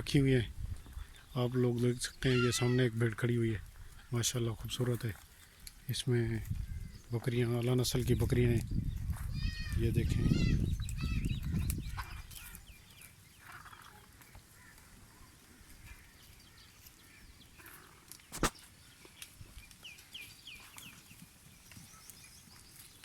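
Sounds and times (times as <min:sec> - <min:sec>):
faint bird calls: 0:02.1 - 0:03.0, 0:09.3 - 0:23.0.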